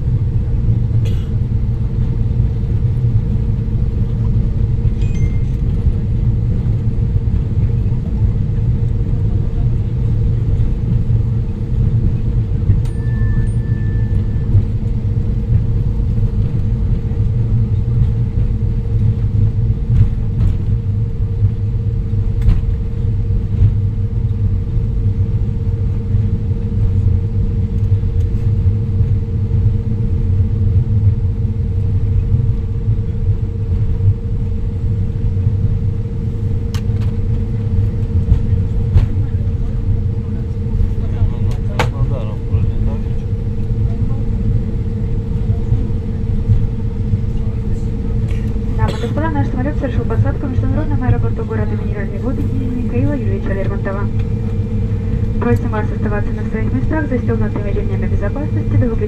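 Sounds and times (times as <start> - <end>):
airliner cabin rumble: 0.0 - 59.0
brief high tone: 12.8 - 14.5.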